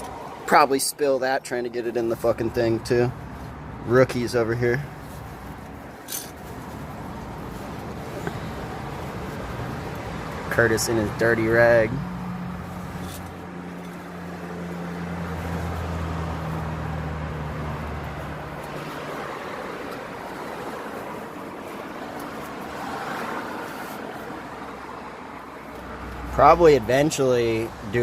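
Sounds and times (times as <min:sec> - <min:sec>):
steady background noise: 0:02.4 - 0:15.8
vehicle engine running: 0:02.8 - 0:19.4.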